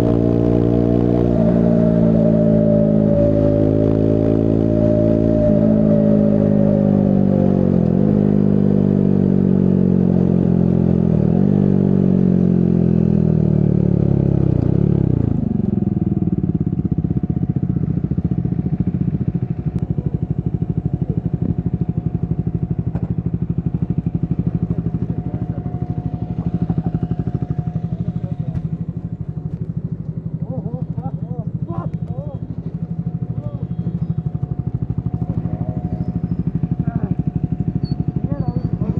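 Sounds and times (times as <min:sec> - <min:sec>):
motorcycle engine revs falling: 0:00.0 - 0:12.1, 0:20.6 - 0:38.9.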